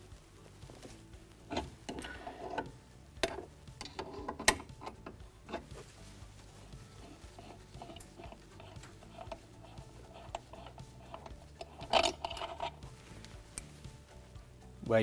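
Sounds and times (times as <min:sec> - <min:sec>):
spanner metallic clicks and knocks: 0:01.5 - 0:05.7, 0:07.4 - 0:12.8.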